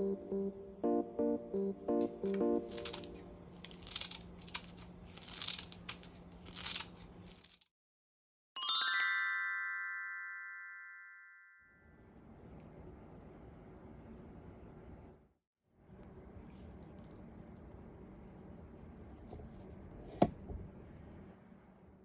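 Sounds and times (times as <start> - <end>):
soft background music: 0.0 - 3.6
bright chime run: 8.6 - 11.6.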